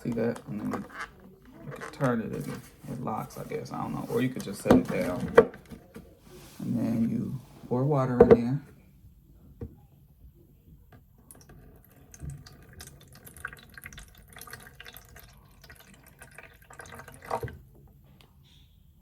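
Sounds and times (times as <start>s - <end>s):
water pouring and splashing: 11.4s - 17.6s.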